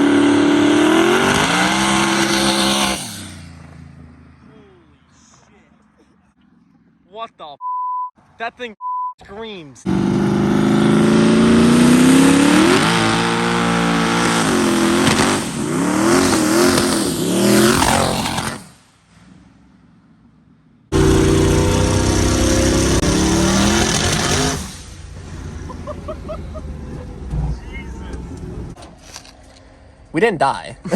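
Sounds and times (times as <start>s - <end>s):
car engine screaming at full throttle: 0.0s - 3.5s, 9.9s - 18.7s, 20.9s - 28.8s.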